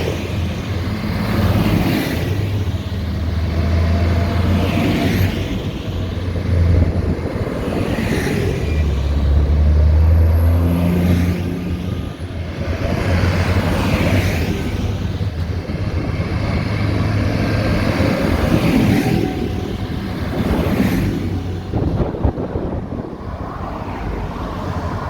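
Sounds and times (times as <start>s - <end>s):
tractor engines driving past: 0.0s - 25.0s.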